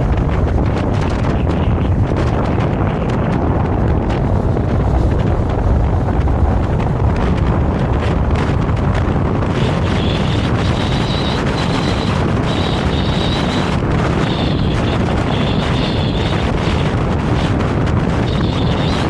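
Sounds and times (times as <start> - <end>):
tram rumbling along track: 0.0 - 19.0
thin high whine: 9.5 - 17.5, 18.1 - 19.0.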